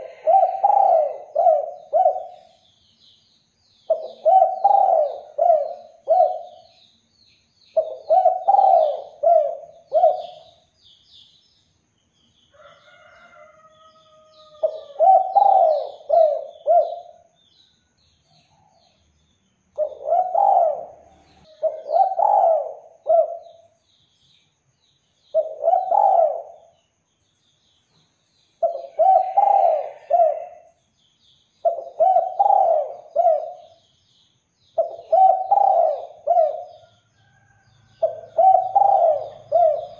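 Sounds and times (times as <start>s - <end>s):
dove cooing: 0.0s - 2.6s, 3.9s - 6.7s, 7.8s - 10.6s, 14.4s - 17.3s, 19.8s - 23.8s, 25.3s - 26.7s, 28.6s - 30.7s, 31.6s - 33.8s, 34.8s - 37.0s, 38.0s - 39.9s
small birds chirping: 0.0s - 39.9s.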